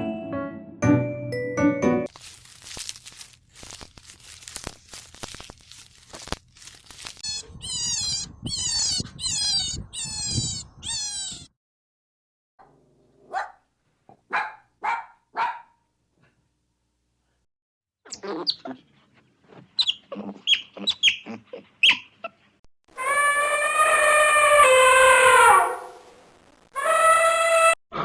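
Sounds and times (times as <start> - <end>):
rustling and clicking handling: 2.1 - 7.3
young animals crying: 2.7 - 11.5, 22.9 - 25.8, 26.8 - 27.8.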